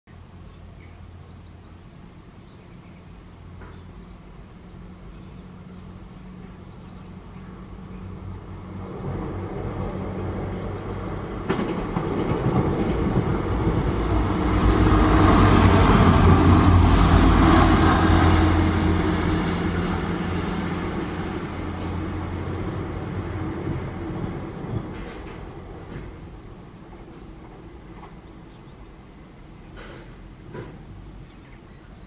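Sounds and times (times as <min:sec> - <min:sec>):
diesel railcar passing: 0:00.1 - 0:32.0.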